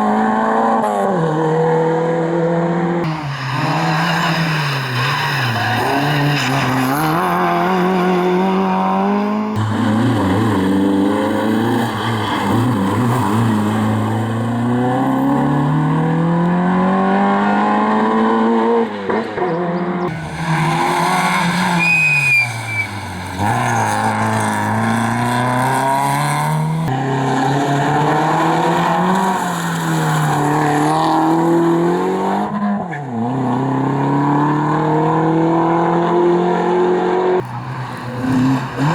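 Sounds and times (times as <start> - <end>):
rally car engines revving: 0.0 - 38.9
tyre squeal: 3.1 - 8.6, 19.4 - 25.2.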